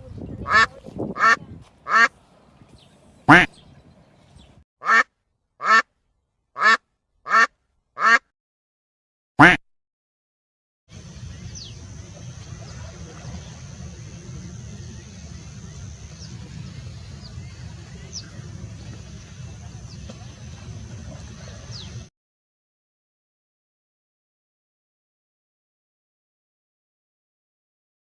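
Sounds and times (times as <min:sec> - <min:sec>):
steady low rumble: 0:10.9 - 0:22.1.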